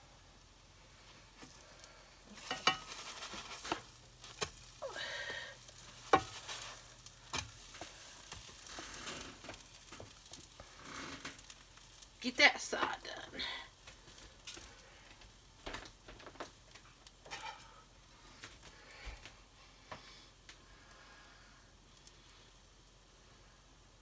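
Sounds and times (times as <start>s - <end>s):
toast sizzling in frying pan: 0.0s - 24.0s
spatula knocking and scraping pan: 2.4s - 4.7s, 5.6s - 11.5s, 17.3s - 17.8s.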